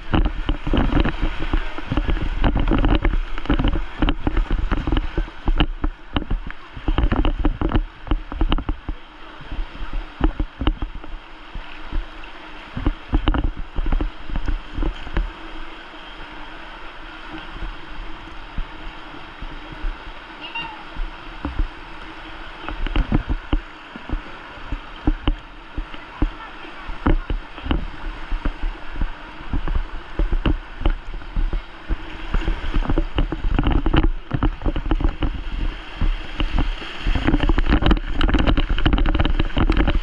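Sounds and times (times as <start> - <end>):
paddle strokes: 0.0 - 40.0
water splashing around boat: 0.0 - 40.0
low rumble: 20.9 - 40.0.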